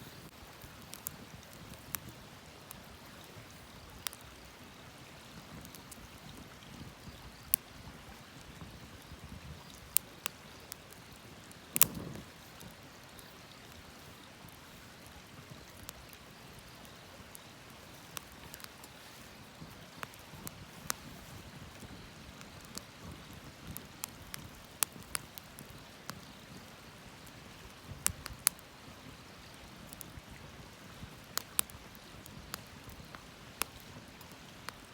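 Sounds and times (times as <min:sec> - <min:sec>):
campfire crackling and popping: 0:00.0 - 0:34.9.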